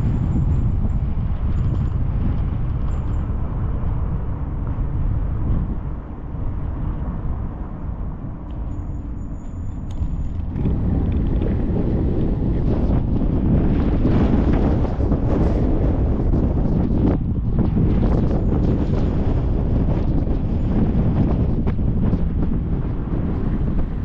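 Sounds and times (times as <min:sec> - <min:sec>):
car engine and tyres rumbling: 0:00.0 - 0:24.0
wind buffeting microphone: 0:00.0 - 0:24.0.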